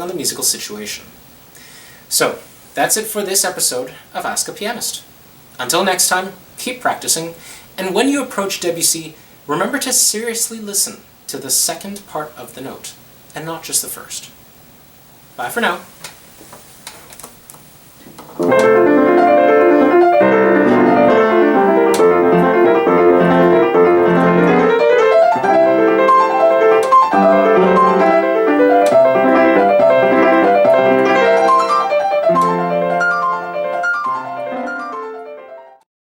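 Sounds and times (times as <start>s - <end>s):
solo piano playing: 18.3s - 35.8s.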